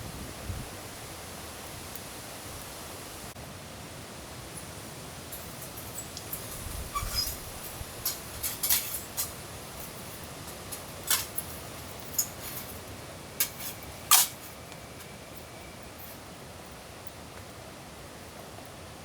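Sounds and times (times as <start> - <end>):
rain hiss: 0.0 - 19.0
camping gear clicks and knocks: 7.1 - 15.2.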